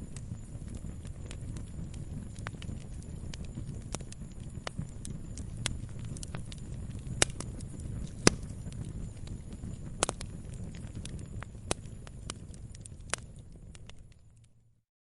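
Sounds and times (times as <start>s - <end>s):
log fire crackling: 0.0s - 14.7s
low rumble of burning: 0.0s - 14.8s.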